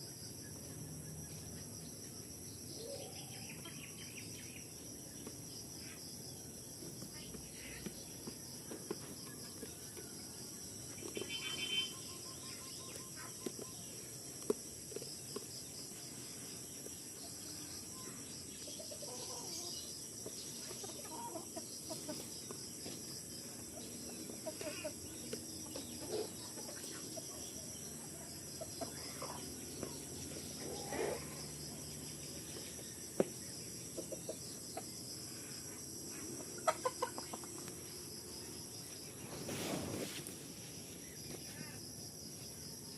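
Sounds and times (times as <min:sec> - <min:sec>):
high insect drone: 0:00.0 - 0:42.9
animals clucking: 0:18.6 - 0:19.7, 0:20.5 - 0:23.0, 0:23.6 - 0:27.7, 0:28.5 - 0:31.9, 0:33.7 - 0:35.2, 0:36.1 - 0:38.0.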